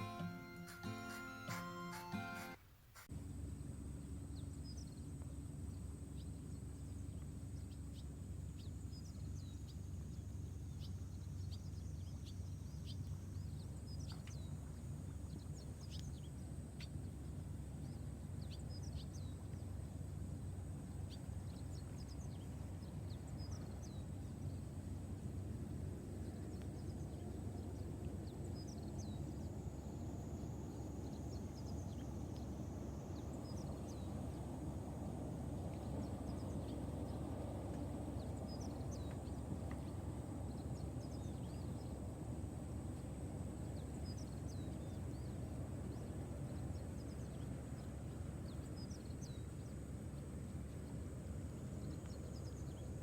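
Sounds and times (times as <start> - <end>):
faint high-pitched tone: 0.0 - 2.7.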